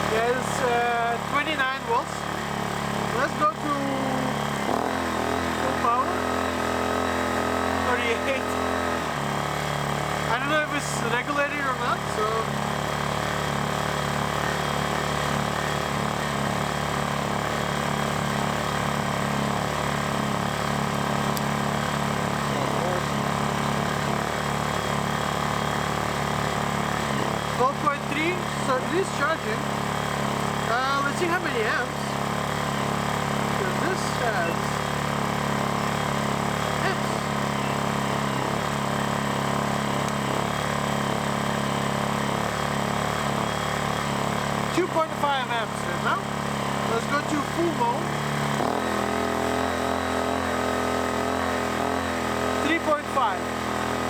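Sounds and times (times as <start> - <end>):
inverter generator running: 0.0 - 54.0.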